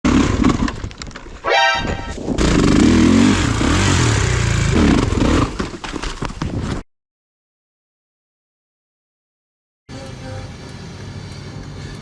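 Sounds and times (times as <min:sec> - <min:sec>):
motocross engine revving: 0:02.4 - 0:05.7.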